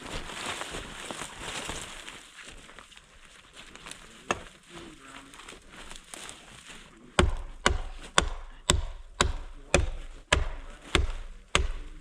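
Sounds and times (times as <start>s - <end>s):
axe chopping tree trunk: 7.2s - 12.0s.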